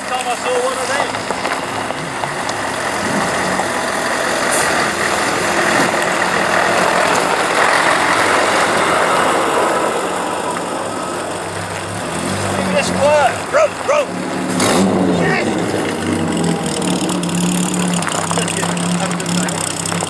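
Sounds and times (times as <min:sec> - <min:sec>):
car driving past: 0:00.0 - 0:20.0.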